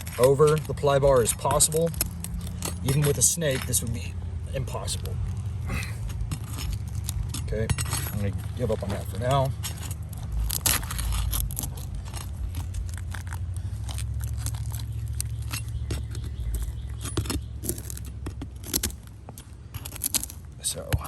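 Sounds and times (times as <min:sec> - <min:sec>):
sharp crackling clicks: 0:00.0 - 0:03.8, 0:09.6 - 0:21.0
pry bar scraping shingles: 0:00.0 - 0:05.0, 0:05.7 - 0:21.0
steady low rumble: 0:00.0 - 0:21.0.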